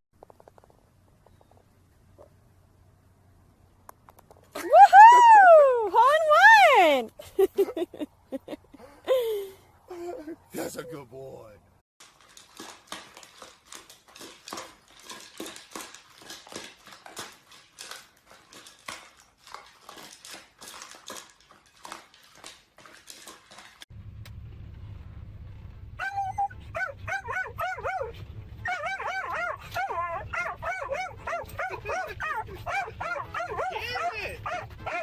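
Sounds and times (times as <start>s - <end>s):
rustling and clicking: 0.2s - 2.4s, 12.0s - 24.4s
low steady hum: 23.9s - 35.0s
dog whimpering and whining: 26.0s - 35.0s.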